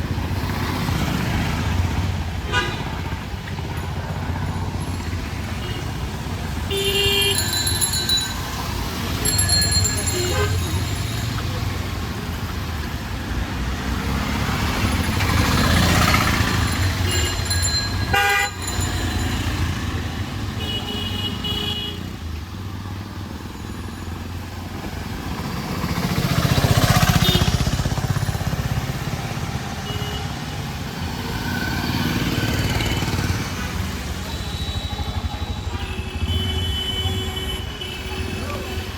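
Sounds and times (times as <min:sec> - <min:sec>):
vehicles passing: 0:00.0 - 0:38.9.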